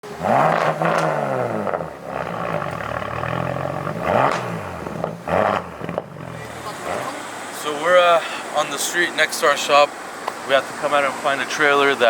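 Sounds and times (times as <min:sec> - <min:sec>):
car engine revving: 0:00.0 - 0:08.0
loud exhaust rush: 0:00.0 - 0:12.0.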